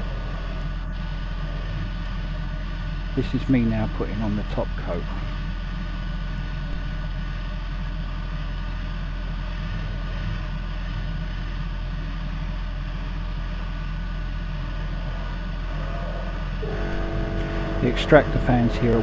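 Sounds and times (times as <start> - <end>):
deep hum: 0.0 - 19.0
extractor fans whooshing: 16.6 - 19.0.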